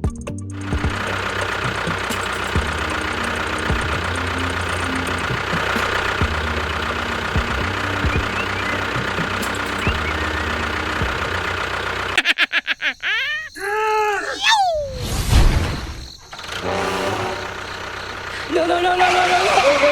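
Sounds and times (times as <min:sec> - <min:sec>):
small motor humming with gear whine: 0:00.7 - 0:12.2.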